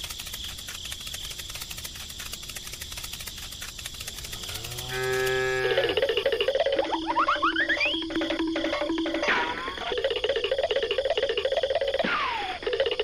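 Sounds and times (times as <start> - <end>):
fast even ticking: 0.0 - 9.2
cow mooing: 4.3 - 6.0.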